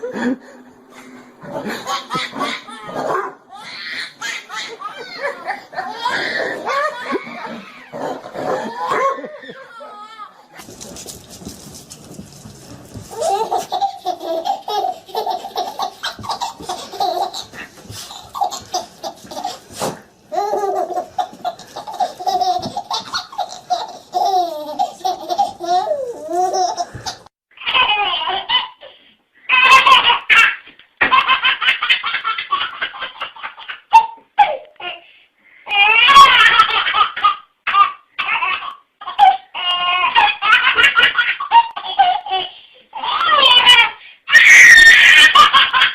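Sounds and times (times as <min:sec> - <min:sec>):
baby laughing: 0:01.5 - 0:10.4, 0:13.1 - 0:28.9, 0:29.5 - 0:35.0, 0:35.7 - 0:45.9
high-pitched squealing laughter: 0:01.7 - 0:10.2, 0:43.0 - 0:45.9.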